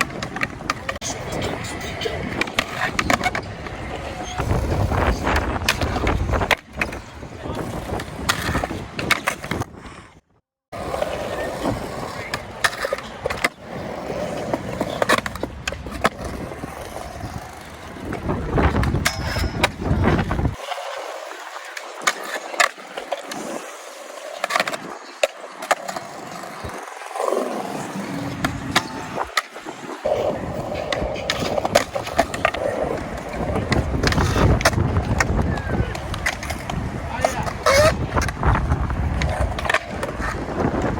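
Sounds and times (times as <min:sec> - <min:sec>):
skateboard clacks: 0:00.0 - 0:09.7, 0:10.8 - 0:40.9
wind rumble on microphone: 0:00.0 - 0:10.2, 0:15.8 - 0:20.6, 0:30.0 - 0:40.9
skateboards rolling over concrete: 0:00.0 - 0:40.9.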